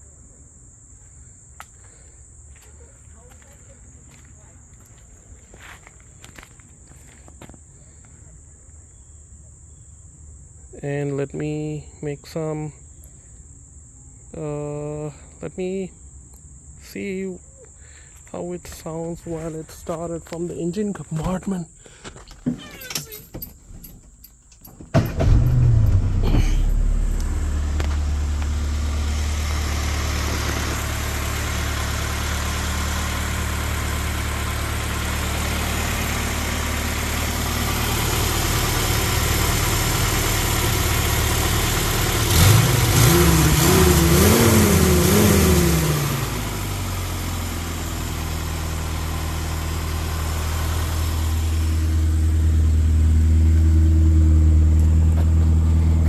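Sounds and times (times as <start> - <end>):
car engine idling and revving: 24.9 - 56.0.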